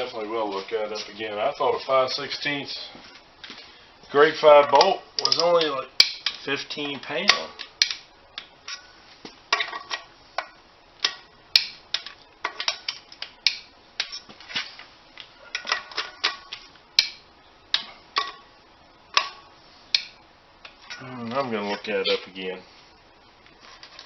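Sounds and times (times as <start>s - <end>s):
hand tools clinking on metal: 4.7s - 6.4s.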